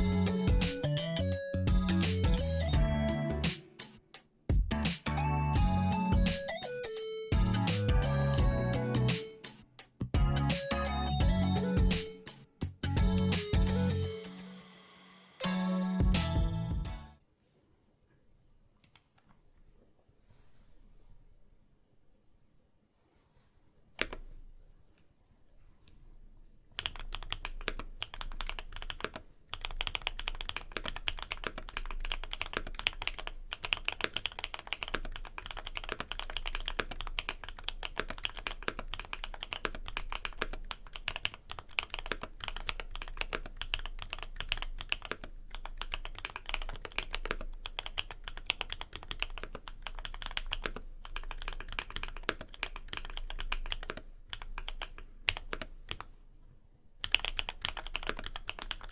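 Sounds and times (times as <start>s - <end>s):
mechanical keyboard typing: 26.8s - 56.1s, 57.0s - 58.9s.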